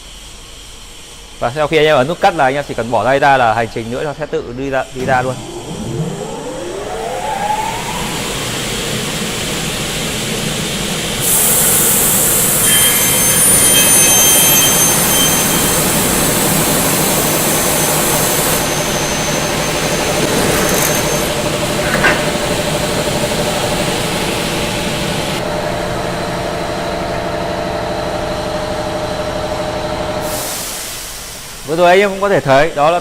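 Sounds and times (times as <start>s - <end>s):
saw motors running: 11.2s - 25.4s
saw blade screeching through metal: 12.1s - 22.5s
pneumatic clamps releasing: 17.6s - 22.8s.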